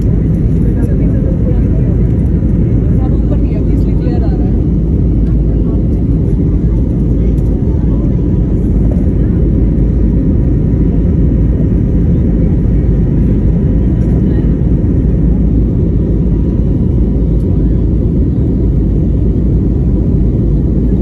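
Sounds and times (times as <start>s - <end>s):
jet cabin engine rumble: 0.0s - 21.0s.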